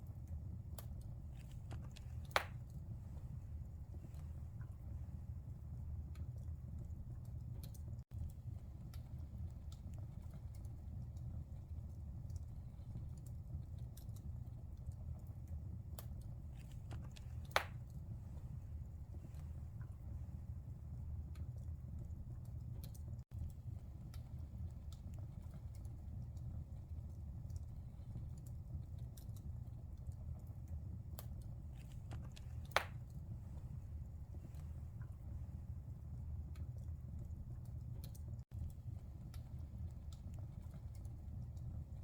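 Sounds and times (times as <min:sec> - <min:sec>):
fire crackling: 0:00.0 - 0:42.0
fire rumbling: 0:00.0 - 0:42.0
sharp pop of fire: 0:02.2 - 0:02.7, 0:17.4 - 0:17.8, 0:32.6 - 0:33.0
loud pop from fire: 0:17.5 - 0:17.8, 0:32.7 - 0:33.0.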